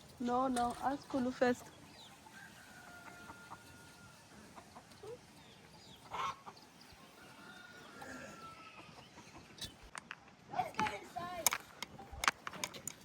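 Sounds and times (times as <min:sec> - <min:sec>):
chickens clucking and calling: 0:01.4 - 0:09.9.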